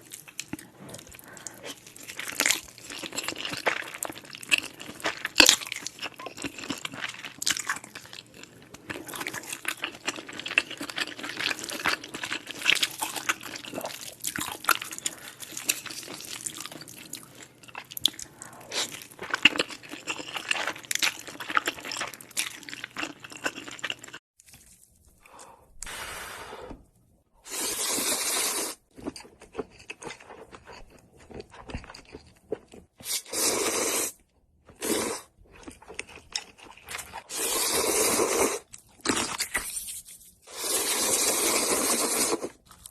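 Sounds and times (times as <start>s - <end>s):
crunching and chewing: 0.0s - 25.4s, 28.9s - 33.2s, 34.6s - 37.3s, 42.4s - 42.9s.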